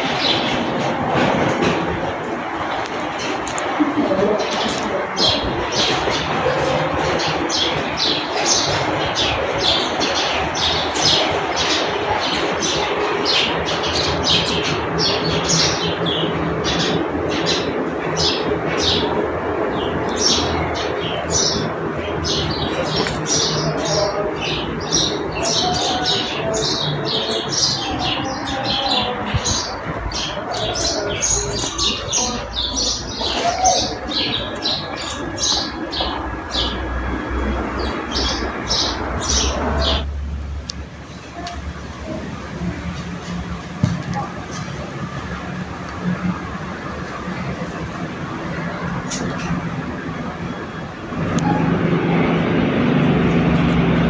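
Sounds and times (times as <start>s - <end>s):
low background rush: 0.0s - 54.0s
small birds chirping: 2.6s - 40.1s.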